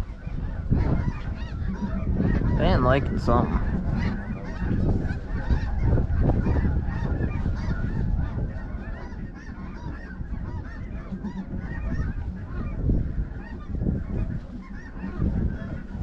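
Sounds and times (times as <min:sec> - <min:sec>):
geese honking: 0:00.0 - 0:16.0.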